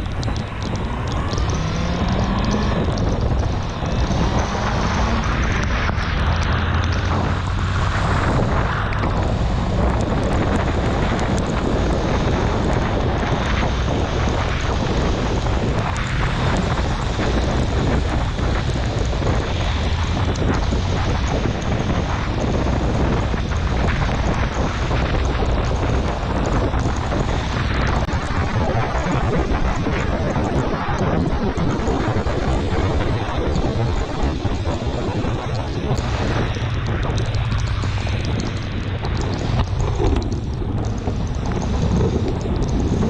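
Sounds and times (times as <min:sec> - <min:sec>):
motorcycle engine running: 0:00.0 - 0:27.9
tyres hissing on wet road: 0:00.0 - 0:43.0
wind rush on microphone: 0:00.0 - 0:43.0.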